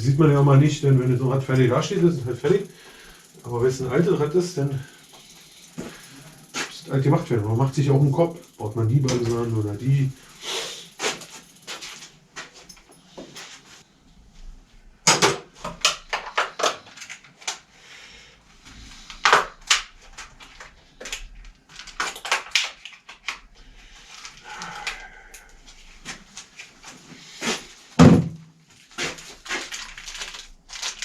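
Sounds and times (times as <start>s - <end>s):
clatter of tools being handled: 1.6s - 13.6s
heavy thump: 28.0s - 28.4s.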